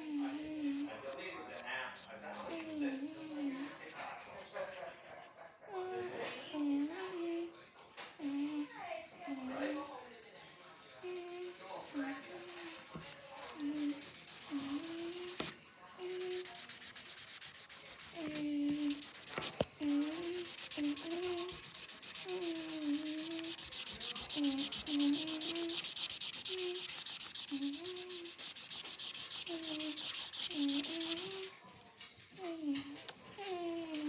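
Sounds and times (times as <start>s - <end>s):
marker scratching on paper: 2.0s - 2.8s, 3.8s - 5.3s, 9.1s - 31.5s, 33.8s - 34.0s.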